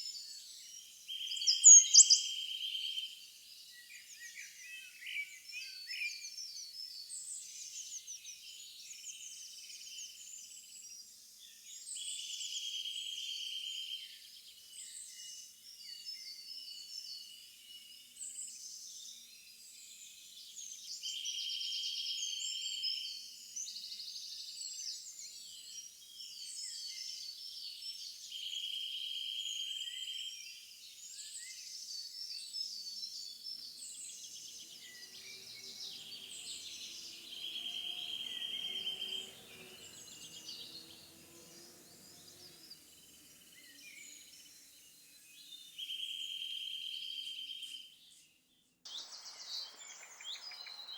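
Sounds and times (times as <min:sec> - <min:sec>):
songbirds singing and chirping: 0:00.0 - 0:10.1, 0:23.6 - 0:50.9.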